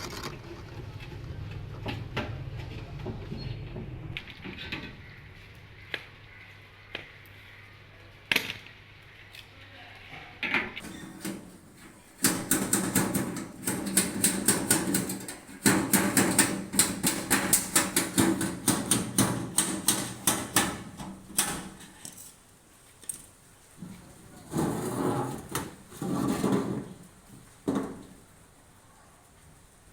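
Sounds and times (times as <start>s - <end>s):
rapid uneven clicks and knocks: 12.2s - 21.8s.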